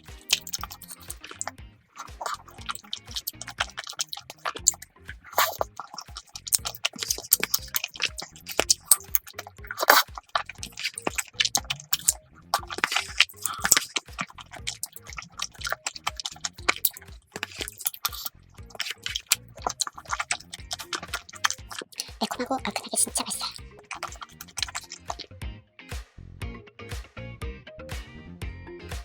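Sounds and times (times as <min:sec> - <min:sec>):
chewing with mouth clicks: 0:00.0 - 0:25.3
soft background music: 0:00.0 - 0:29.0.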